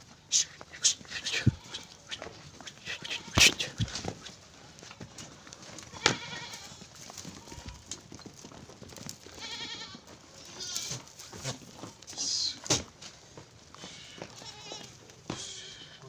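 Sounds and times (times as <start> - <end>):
goat kids bleating: 0.1 - 4.2, 5.6 - 8.0, 9.3 - 12.9, 13.8 - 16.0.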